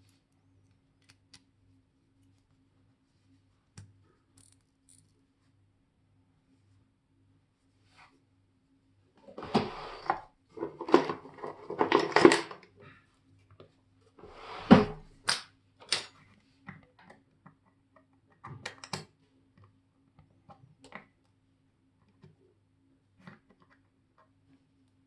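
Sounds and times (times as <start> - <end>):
small tools rustling clatter: 9.4 - 12.7.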